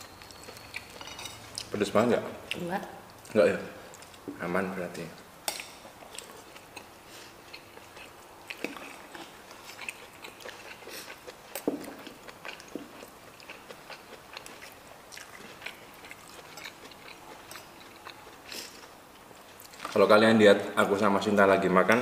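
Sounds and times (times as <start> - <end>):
people chewing crunchy food: 0.0 - 1.9, 5.8 - 20.0
cutlery clicking on plates: 0.9 - 1.4, 5.5 - 5.8.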